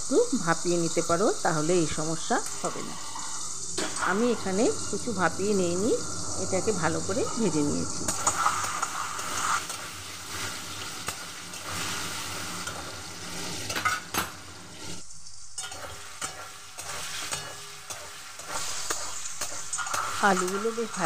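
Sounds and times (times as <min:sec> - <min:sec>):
potatoes sizzling in oil: 0:00.0 - 0:21.0
spatula scraping a pan: 0:08.1 - 0:15.0, 0:15.6 - 0:21.0.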